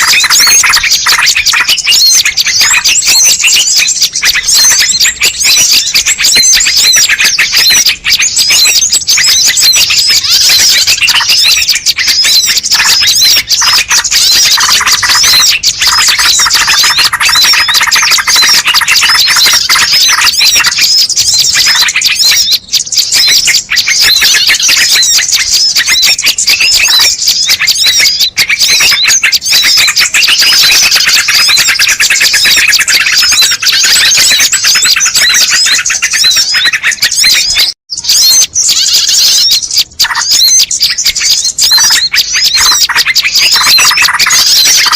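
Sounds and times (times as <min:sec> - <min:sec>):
birds chirping rapidly: 0:00.0 - 0:44.9.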